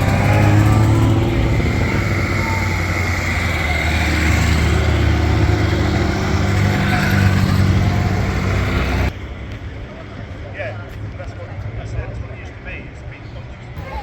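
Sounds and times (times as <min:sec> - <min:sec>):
car engine running: 0:00.0 - 0:09.1.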